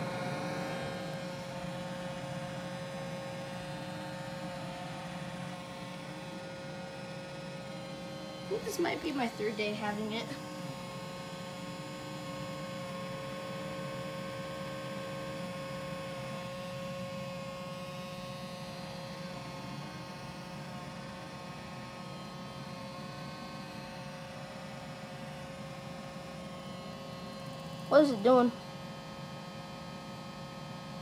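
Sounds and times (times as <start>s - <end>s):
constant whine: 0.0s - 31.0s.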